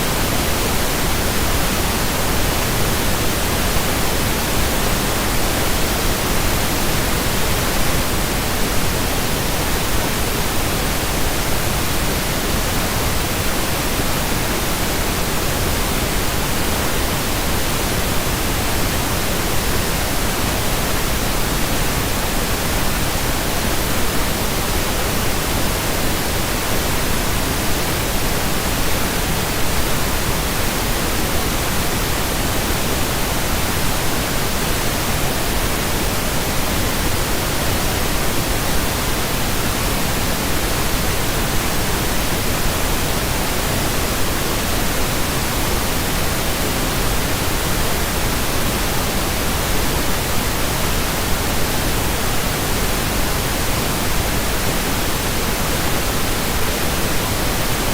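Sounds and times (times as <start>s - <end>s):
pink noise hiss: 0.0s - 57.9s.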